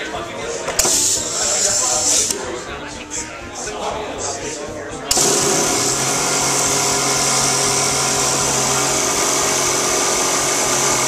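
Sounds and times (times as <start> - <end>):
small model engine whirring: 5.1 - 11.0.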